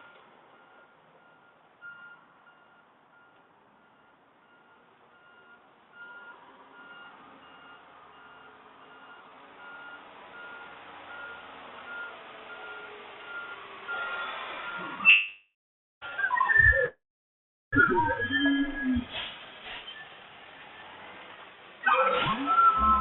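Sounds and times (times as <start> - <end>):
reversing alarm beeping: 0.0 - 15.4, 22.1 - 23.0.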